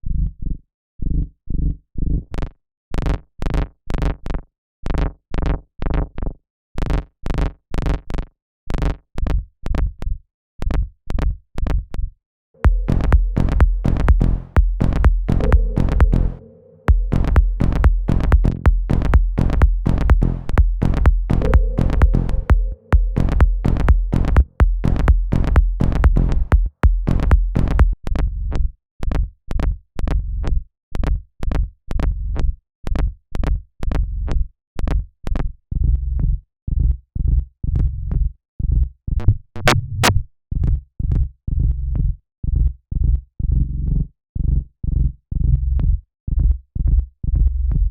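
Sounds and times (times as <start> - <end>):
bass: 0.0 - 4.3, 4.9 - 47.9
electronic dance music: 12.6 - 28.0
looped beat of sharp clicks: 12.6 - 28.0.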